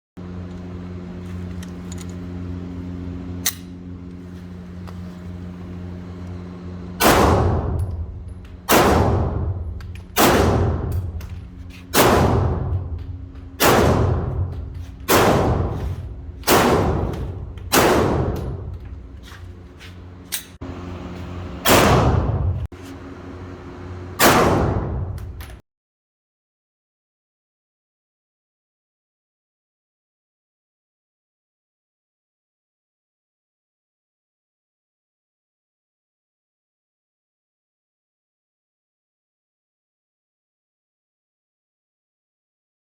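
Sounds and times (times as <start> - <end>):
steady low hum: 0.2 - 25.6
sharp click: 3.4 - 3.8
pistol shots echoing: 7.0 - 7.9, 8.6 - 11.2, 11.9 - 18.7, 21.7 - 22.4, 24.2 - 25.1.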